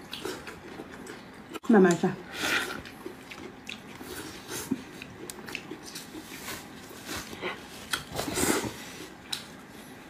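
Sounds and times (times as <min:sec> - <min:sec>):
wet chewing and mouth smacking: 0:00.0 - 0:08.4, 0:09.1 - 0:09.6.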